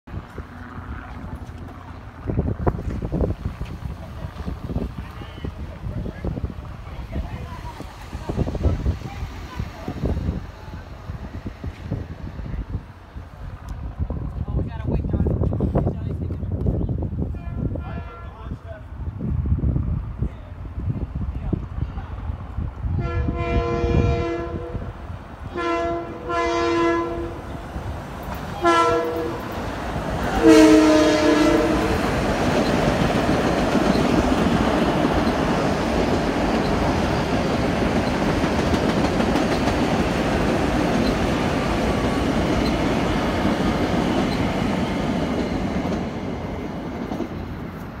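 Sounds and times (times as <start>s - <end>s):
train cars rumbling on rails: 0.1s - 48.0s
train horn blasts: 23.0s - 24.9s, 25.5s - 27.5s, 28.6s - 29.6s, 30.3s - 32.1s.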